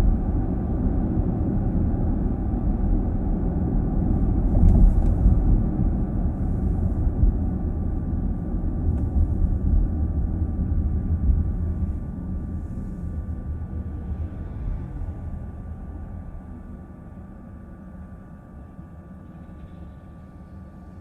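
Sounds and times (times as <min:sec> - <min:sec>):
road and tyre rumble: 0:00.0 - 0:20.1
faint steady whine: 0:00.0 - 0:21.0.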